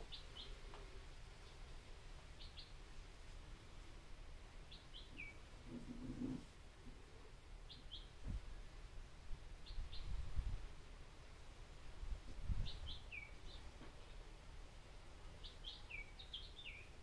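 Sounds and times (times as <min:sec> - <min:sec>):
faint bird chirps: 0:04.7 - 0:06.3, 0:07.7 - 0:08.3, 0:12.5 - 0:14.2, 0:15.4 - 0:17.0.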